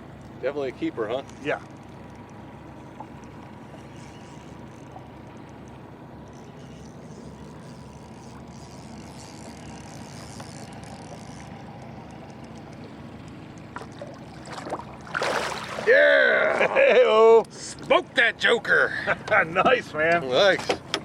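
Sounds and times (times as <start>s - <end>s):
boat motor idling: 0.0s - 21.0s.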